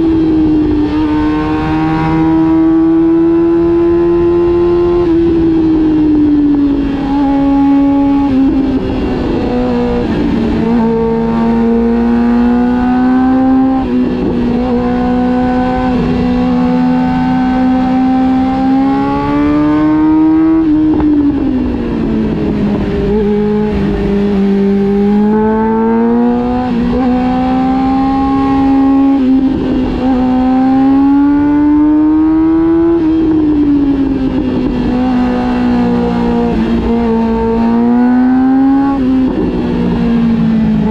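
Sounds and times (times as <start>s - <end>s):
motorcycle engine revving: 0.0s - 40.9s
wind and road noise rumble: 0.0s - 40.9s.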